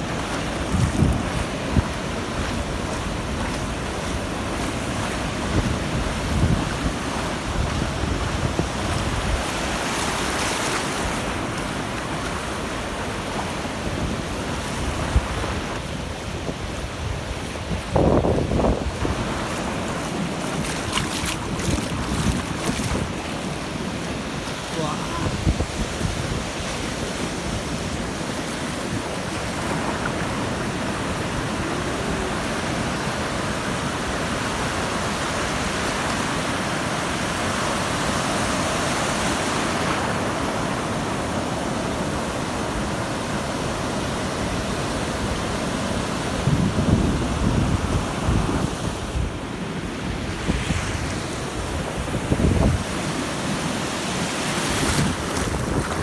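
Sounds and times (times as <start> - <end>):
wind buffeting microphone: 0.0 - 9.9, 13.8 - 35.8, 46.2 - 53.4, 54.8 - 56.0
ocean surf breaking: 0.0 - 56.0.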